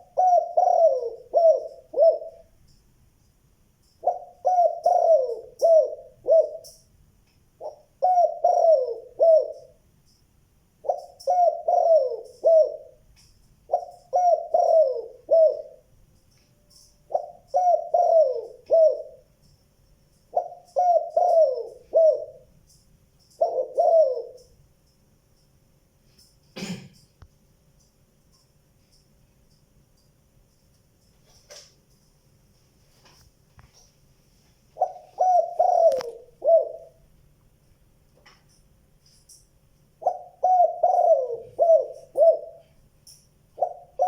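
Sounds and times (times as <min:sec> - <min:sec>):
dove cooing: 0:00.0 - 0:02.6, 0:04.0 - 0:06.8, 0:07.6 - 0:09.8, 0:10.8 - 0:13.0, 0:13.7 - 0:15.9, 0:16.7 - 0:19.3, 0:20.3 - 0:22.5, 0:23.2 - 0:24.5, 0:34.8 - 0:37.0, 0:40.0 - 0:42.8, 0:43.6 - 0:44.0.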